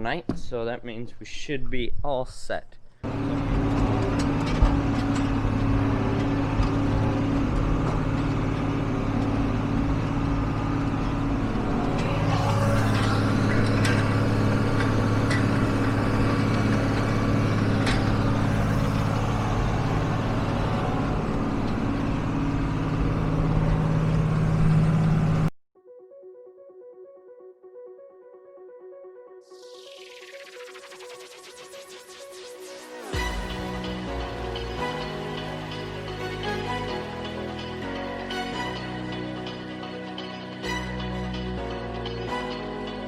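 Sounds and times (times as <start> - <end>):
tractor diesel engine running: 3.0 - 25.5, 33.1 - 43.0.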